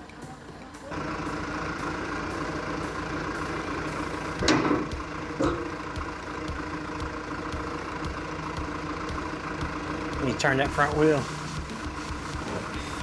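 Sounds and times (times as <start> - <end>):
heavy machine engine running: 0.3 - 13.0
sharp metal clanks: 4.4 - 5.8.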